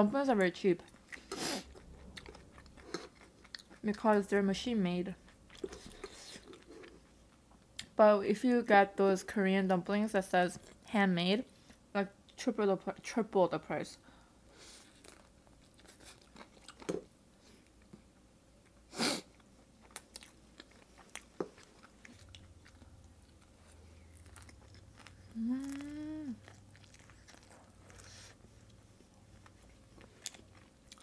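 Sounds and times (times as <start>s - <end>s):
person chewing: 0.8s - 4.0s, 5.2s - 7.9s, 14.8s - 17.0s, 18.6s - 31.0s
person humming: 25.3s - 26.4s.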